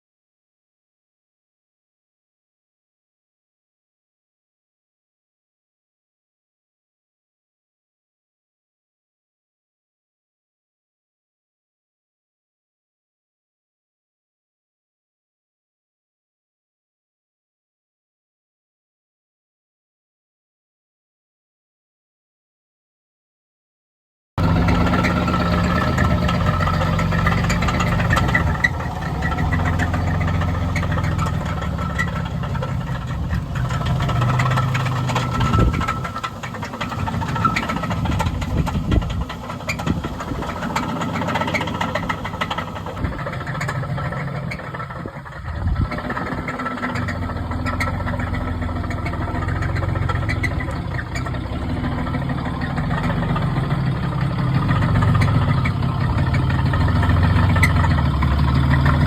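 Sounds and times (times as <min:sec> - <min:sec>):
vehicle engine drone: 0:24.4 - 0:59.0.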